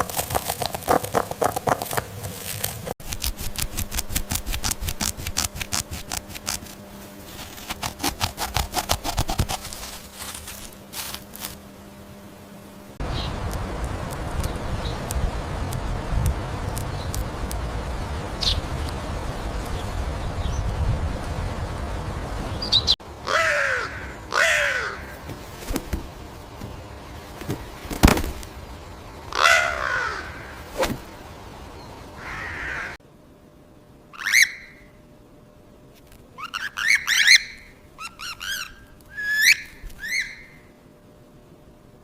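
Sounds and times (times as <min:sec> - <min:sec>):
harsh bird calls: 0:22.5 - 0:25.7, 0:29.3 - 0:30.8, 0:31.7 - 0:33.0, 0:34.1 - 0:34.9, 0:36.4 - 0:40.8.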